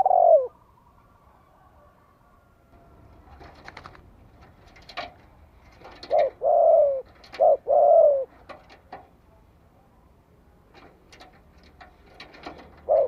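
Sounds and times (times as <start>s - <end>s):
dove cooing: 0.0s - 0.6s, 2.7s - 8.8s, 12.1s - 13.0s.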